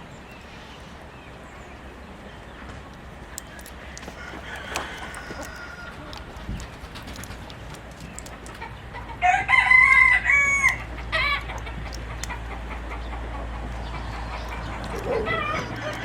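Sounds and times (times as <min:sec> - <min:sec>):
rooster crowing: 0:04.2 - 0:06.2, 0:09.2 - 0:11.4, 0:14.9 - 0:16.0.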